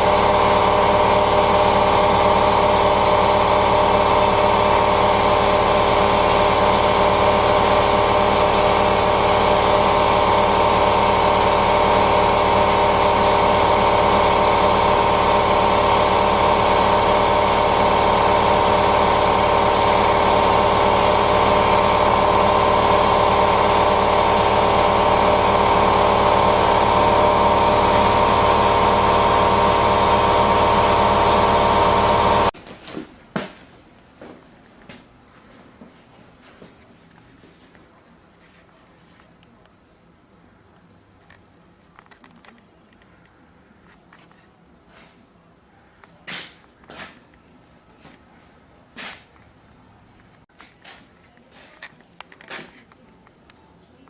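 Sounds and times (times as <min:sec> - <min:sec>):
machine humming with hiss: 0:00.0 - 0:32.6.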